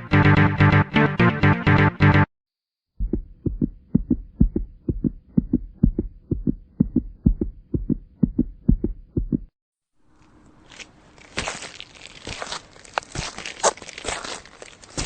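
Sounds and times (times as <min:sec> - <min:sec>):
low heartbeat-like thumps: 0:02.9 - 0:09.5.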